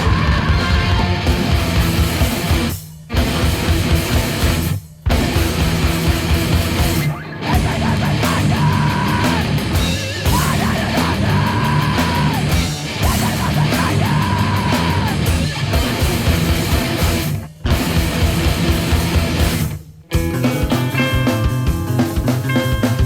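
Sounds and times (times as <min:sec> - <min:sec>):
heavy rock music: 0:00.0 - 0:23.0.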